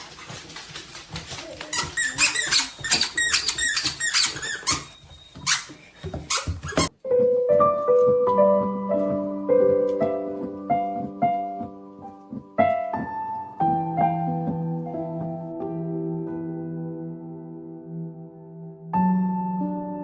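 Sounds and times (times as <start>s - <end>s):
slow piano music: 6.9s - 20.0s.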